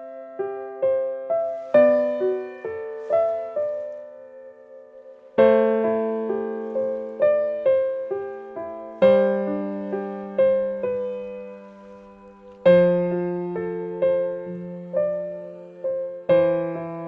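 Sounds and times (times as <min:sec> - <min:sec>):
slow solo piano music: 0:00.0 - 0:17.0.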